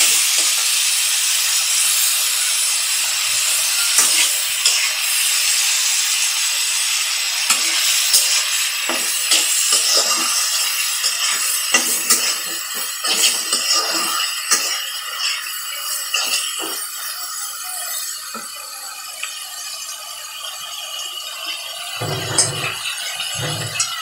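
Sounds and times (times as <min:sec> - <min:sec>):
vegetables sizzling in oil: 0:00.0 - 0:24.0
spatula scraping and knocking pan: 0:07.5 - 0:14.8, 0:22.0 - 0:24.0.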